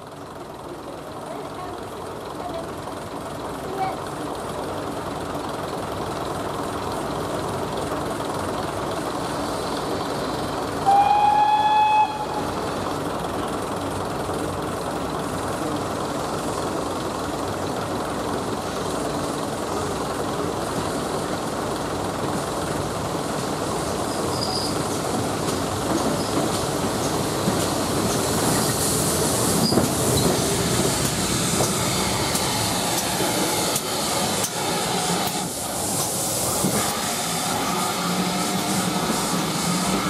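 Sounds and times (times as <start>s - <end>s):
diesel train idling: 0.0s - 40.0s
high train horn blast: 10.8s - 12.6s.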